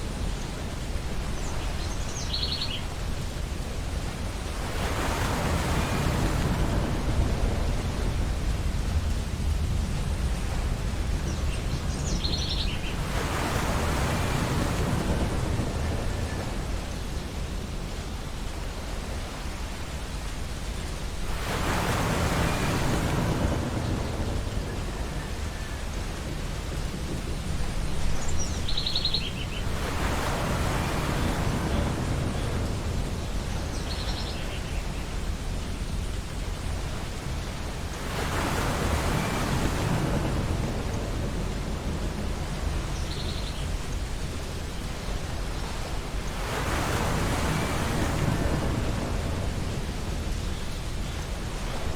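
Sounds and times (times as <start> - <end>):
ocean waves breaking: 0.0 - 51.9.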